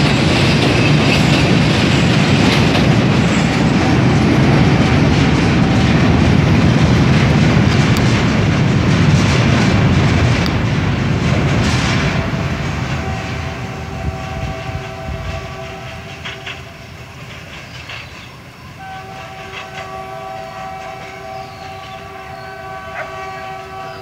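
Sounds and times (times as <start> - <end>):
train wheels clattering on bridge: 0.0 - 24.0
distant warning tone: 17.9 - 24.0.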